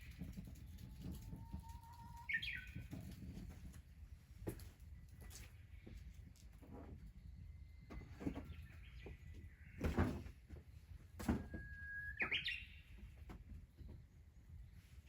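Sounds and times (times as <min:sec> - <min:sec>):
bird whistling: 0:02.2 - 0:02.8, 0:11.5 - 0:12.9.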